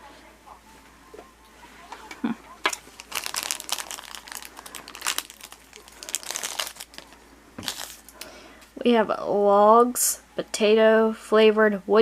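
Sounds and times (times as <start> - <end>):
plastic packaging crinkling: 2.6 - 8.3.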